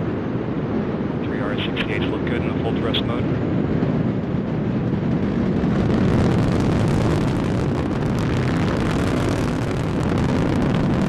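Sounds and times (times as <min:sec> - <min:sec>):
rocket engines rumbling with crackling: 0:00.0 - 0:11.0.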